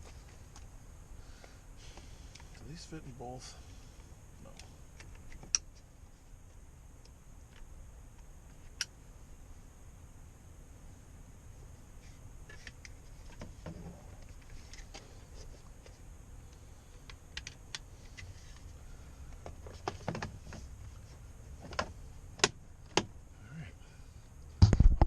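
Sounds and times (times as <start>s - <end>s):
small parts clicking and tapping: 15.8s - 18.7s.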